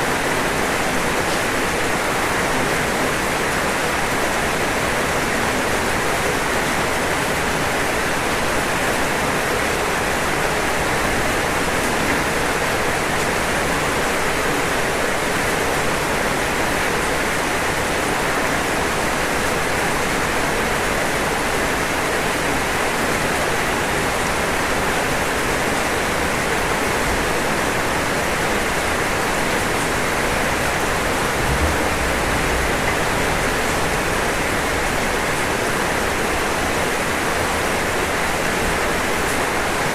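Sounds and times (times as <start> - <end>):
rain on a roof: 0.0 - 39.9
low bump: 30.7 - 35.8.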